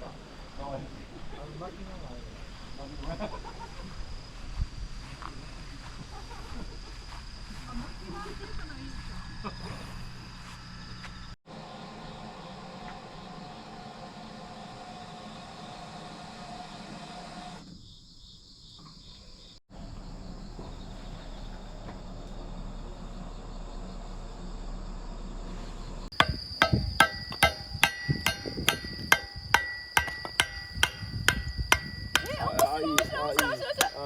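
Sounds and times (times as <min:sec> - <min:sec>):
outdoor background hiss: 0:00.0 - 0:09.4, 0:10.0 - 0:34.0
hammer striking metal tent peg: 0:26.2 - 0:34.0.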